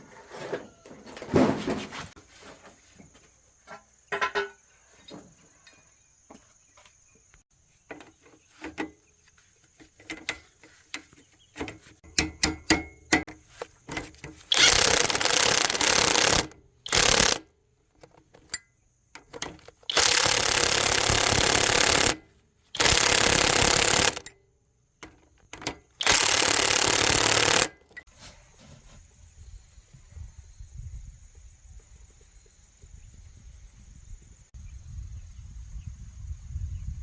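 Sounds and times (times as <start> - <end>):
small clicks and knocks: 9.6 - 22.2, 25.0 - 28.1
power tool bursts: 13.9 - 17.4, 19.2 - 22.2, 22.8 - 24.3, 25.6 - 28.0.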